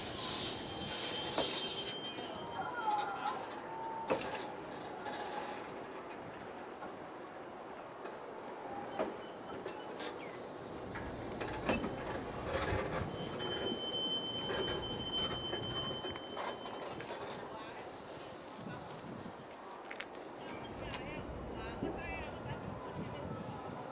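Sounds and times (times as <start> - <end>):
high squeal: 0.0 - 4.2, 11.4 - 17.9
train rolling noise: 0.0 - 23.9.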